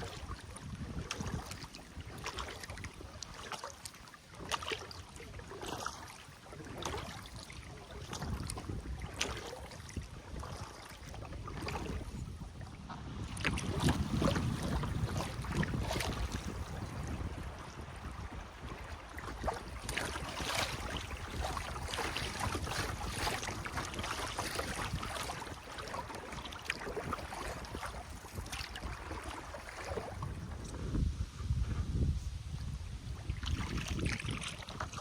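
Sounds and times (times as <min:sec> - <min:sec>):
wind buffeting microphone: 0:00.0 - 0:03.3, 0:06.6 - 0:35.0
paddle splashes: 0:00.0 - 0:35.0
water splashing and trickling: 0:00.0 - 0:35.0.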